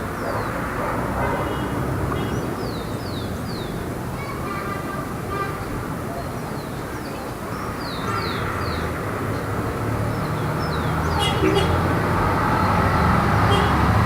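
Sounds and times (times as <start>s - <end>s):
passing cars: 0.0s - 14.0s
birds chirping: 1.5s - 4.3s, 6.0s - 14.0s.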